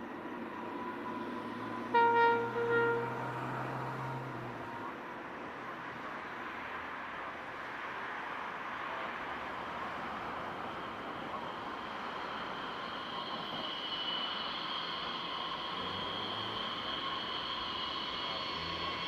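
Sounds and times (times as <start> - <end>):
train rushing running noise: 0.0 - 19.0.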